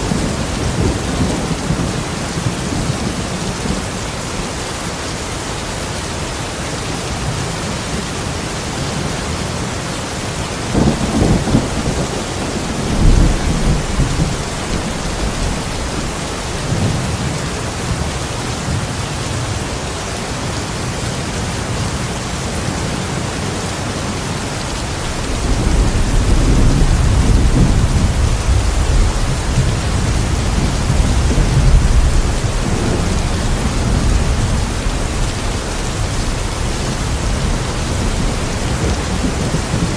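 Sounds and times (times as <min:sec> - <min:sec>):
steady rain: 0:00.0 - 0:39.9
rolling thunder: 0:10.7 - 0:18.0, 0:24.8 - 0:39.9.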